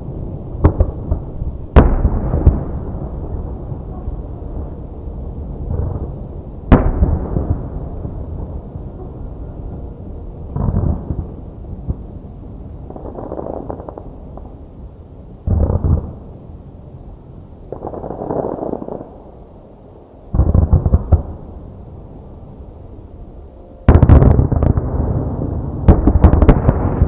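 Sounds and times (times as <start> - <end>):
fireworks crackling: 17.7 - 19.2, 23.9 - 27.0
fireworks bursting: 23.9 - 27.0.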